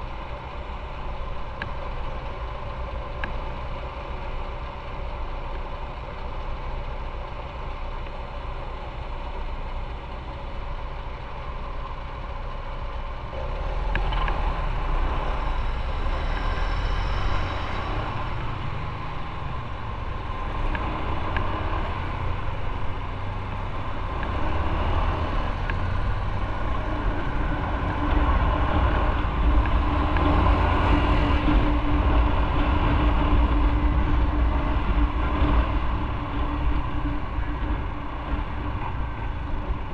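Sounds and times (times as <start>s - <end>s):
motorcycle engine rumble: 0.0s - 39.9s
wind noise: 23.7s - 39.9s.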